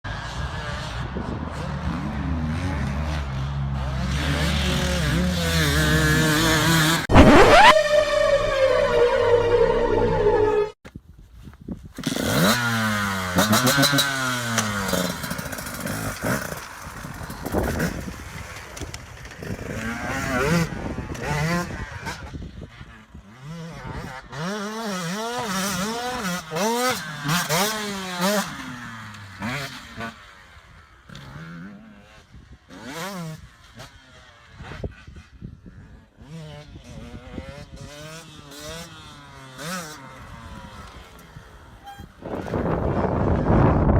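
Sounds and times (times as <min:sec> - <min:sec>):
motorcycle engine revving: 0:00.3 - 0:10.8, 0:12.1 - 0:34.5.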